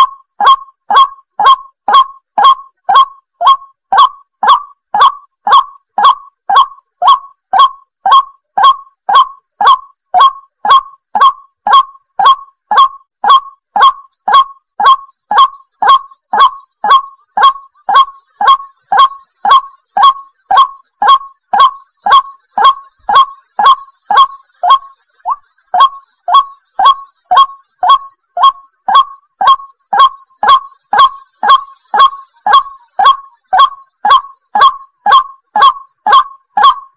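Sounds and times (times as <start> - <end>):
waterhen calling: 0.0 - 36.8.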